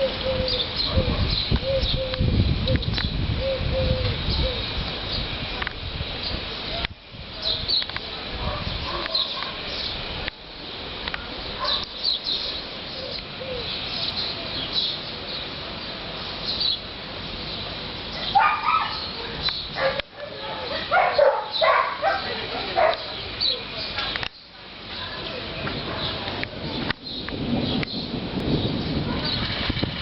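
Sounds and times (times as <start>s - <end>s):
wind noise: 0.0s - 14.5s, 25.1s - 30.0s.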